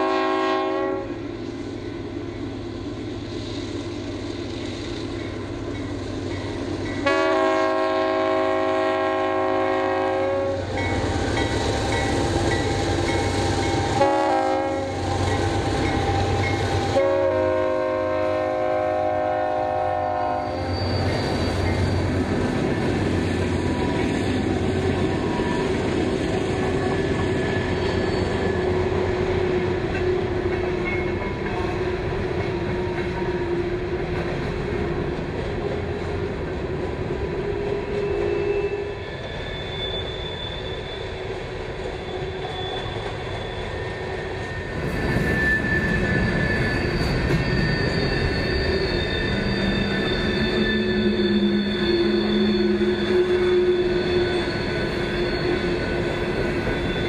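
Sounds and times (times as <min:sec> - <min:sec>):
train rumbling past: 0:00.0 - 0:57.0
high wheel squeal: 0:10.6 - 0:17.0, 0:20.0 - 0:31.3, 0:37.8 - 0:57.0.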